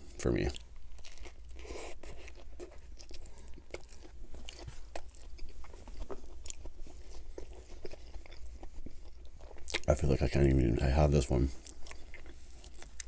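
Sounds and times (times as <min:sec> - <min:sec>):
chewing: 0:00.4 - 0:09.9, 0:11.5 - 0:13.0.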